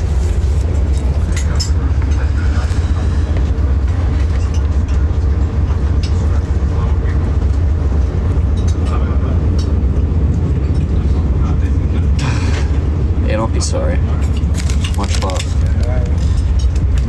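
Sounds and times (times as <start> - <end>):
train rumbling in motion: 0.0 - 17.0
light clicks and rattles: 14.2 - 17.0.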